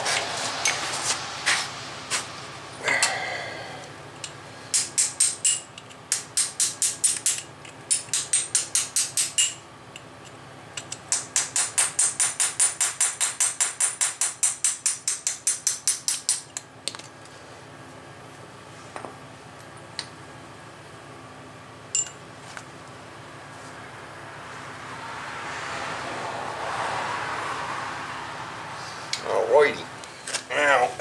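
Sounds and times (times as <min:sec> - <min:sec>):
hammer tapping on steel: 0:04.2 - 0:09.6.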